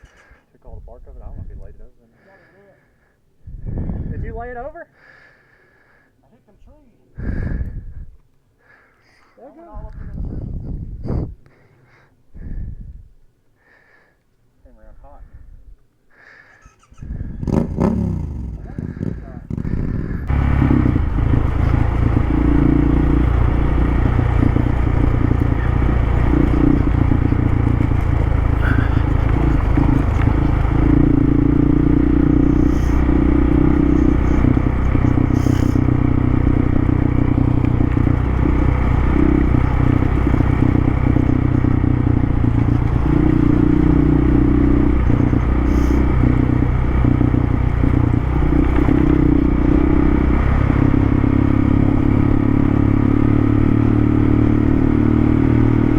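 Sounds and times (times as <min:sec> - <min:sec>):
motorcycle engine running: 0:16.7 - 0:55.9.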